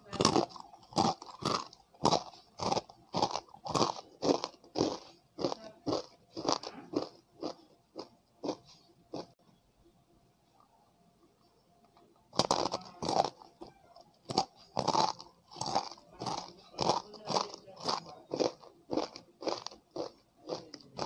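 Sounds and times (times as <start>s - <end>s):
crunchy snack chewing: 0.1s - 9.3s, 12.3s - 21.0s
loud bite crunch: 0.2s - 9.3s, 14.3s - 21.0s.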